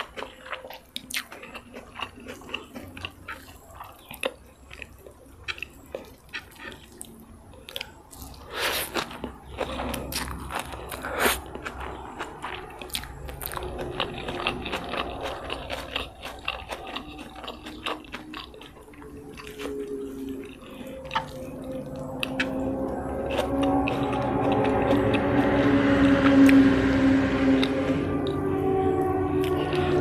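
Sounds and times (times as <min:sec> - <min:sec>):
chewing crunchy noodles: 0:00.0 - 0:30.0
road traffic drone: 0:00.0 - 0:30.0.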